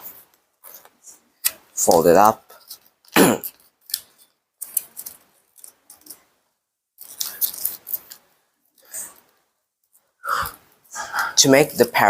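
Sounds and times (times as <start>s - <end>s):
paper being folded and creased: 0.1s - 6.4s, 7.0s - 9.3s.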